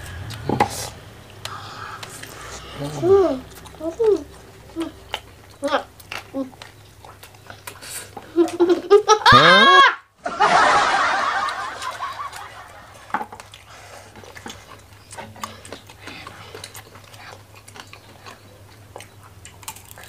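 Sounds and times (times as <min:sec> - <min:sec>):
eating clicks and smacks: 0:00.2 - 0:09.0, 0:12.2 - 0:20.0
burst of laughter: 0:08.5 - 0:13.0
loud vocal exclamation: 0:09.2 - 0:10.1.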